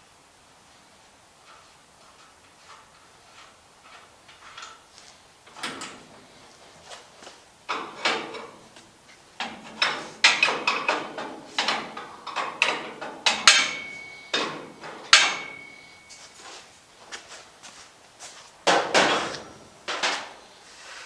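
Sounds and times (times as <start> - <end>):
hand tools clanking on steel: 1.5 - 6.4, 7.7 - 16.7, 18.7 - 20.4.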